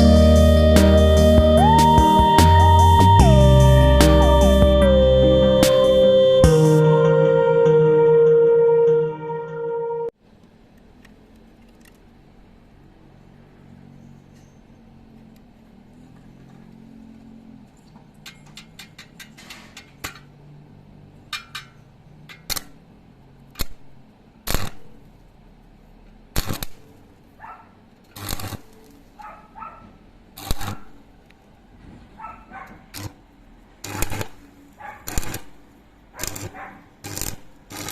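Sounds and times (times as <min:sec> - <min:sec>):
sharp clicks and knocks: 0:18.2 - 0:20.3.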